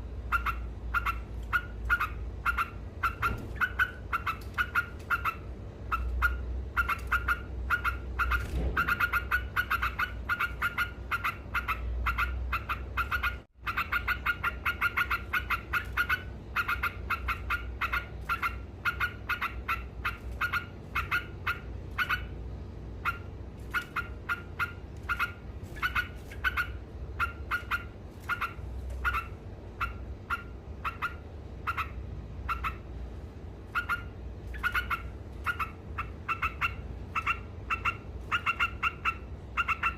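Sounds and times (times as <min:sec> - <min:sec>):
bird singing chattering song: 0:00.2 - 0:22.4, 0:33.7 - 0:39.9.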